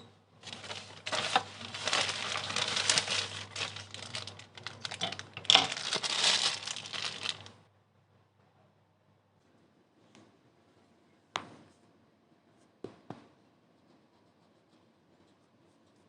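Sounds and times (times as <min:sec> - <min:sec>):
packaging crinkling: 0:00.4 - 0:07.6.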